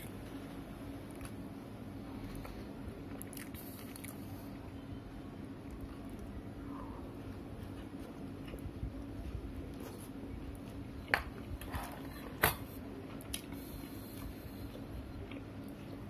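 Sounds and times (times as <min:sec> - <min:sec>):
steady low hum: 0:00.0 - 0:16.0
person chewing food: 0:02.2 - 0:04.2, 0:09.7 - 0:16.0.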